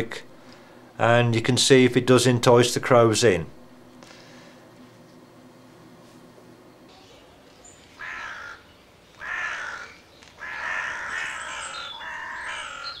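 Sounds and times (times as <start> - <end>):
crow call caws: 8.0 - 13.0.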